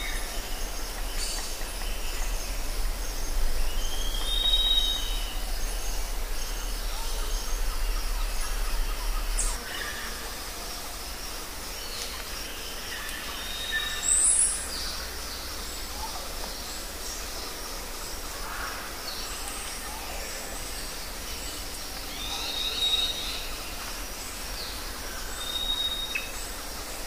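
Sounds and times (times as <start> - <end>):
background hiss: 0.0 - 27.0
birds chirping and whistling: 1.2 - 9.6.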